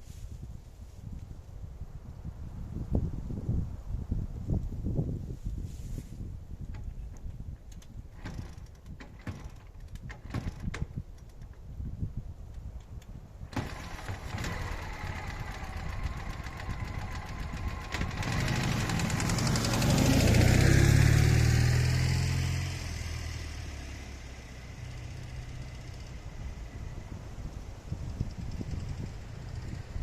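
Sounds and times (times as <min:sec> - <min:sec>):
motorcycle engine passing: 0:13.5 - 0:30.0.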